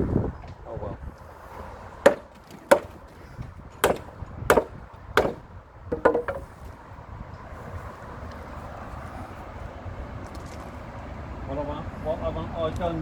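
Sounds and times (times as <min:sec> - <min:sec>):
knocks on wooden gate: 0:02.1 - 0:06.5.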